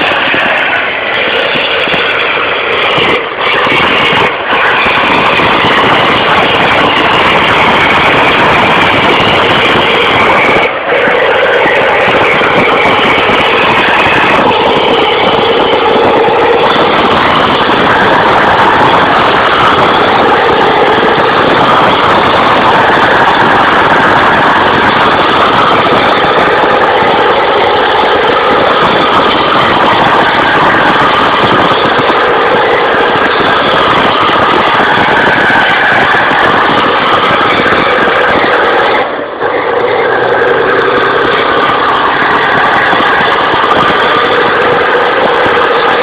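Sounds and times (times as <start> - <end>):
tractor engine running: 0.0 - 46.0.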